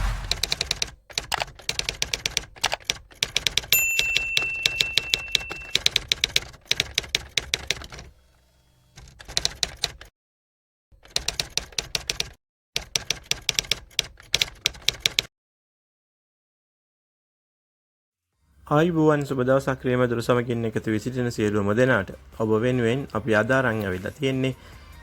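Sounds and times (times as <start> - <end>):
typewriter keys clacking: 0.4 - 8.0
typewriter bell ding: 3.7 - 6.0.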